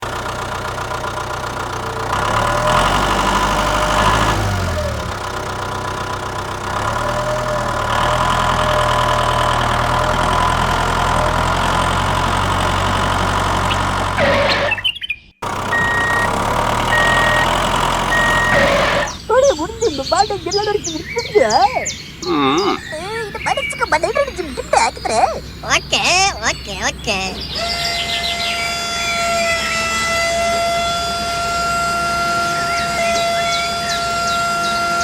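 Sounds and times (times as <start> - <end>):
small machine motor running: 15.5 - 19.2, 27.5 - 35.0.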